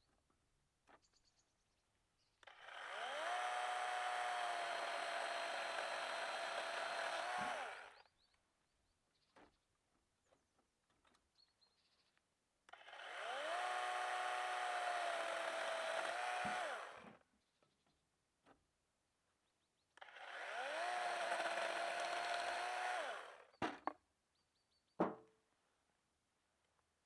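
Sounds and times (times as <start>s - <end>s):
electric chainsaw whine: 2.4s - 8.1s, 12.7s - 17.2s, 20.0s - 23.5s.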